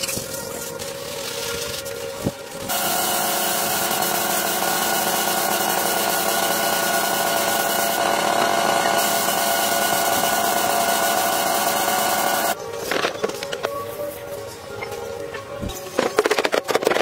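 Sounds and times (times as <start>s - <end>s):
power tool whining: 2.7s - 12.6s.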